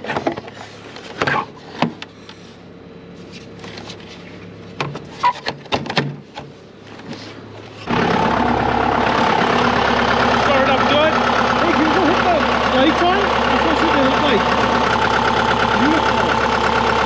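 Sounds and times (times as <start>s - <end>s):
tractor diesel engine running: 6.5s - 17.0s.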